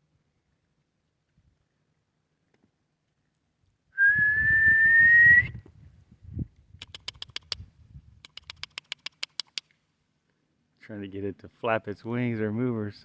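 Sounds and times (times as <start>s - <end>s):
person whistling: 4.0s - 5.6s
sharp clicks: 6.8s - 7.6s, 8.2s - 9.7s.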